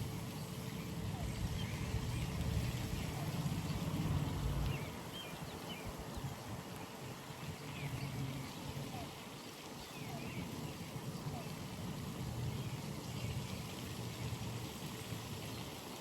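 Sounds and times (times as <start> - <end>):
low rumble: 2.2 - 4.8.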